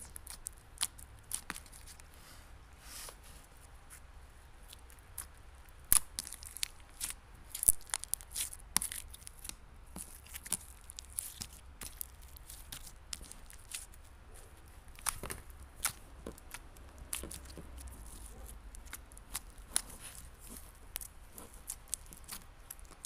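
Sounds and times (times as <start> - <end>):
slime squished by hand: 4.6 - 23.0.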